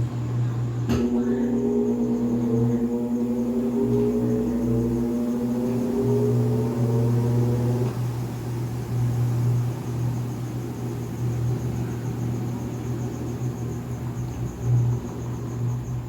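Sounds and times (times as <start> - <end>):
washing machine motor hum: 0.0 - 16.0
high motor whine: 0.6 - 16.0
drum rumbling: 0.9 - 8.4.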